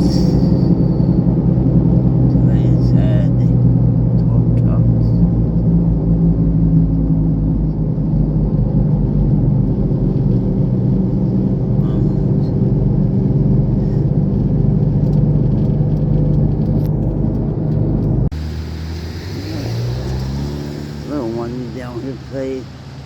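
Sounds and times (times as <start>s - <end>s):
car engine drone: 0.0s - 23.0s
road noise: 0.0s - 23.0s.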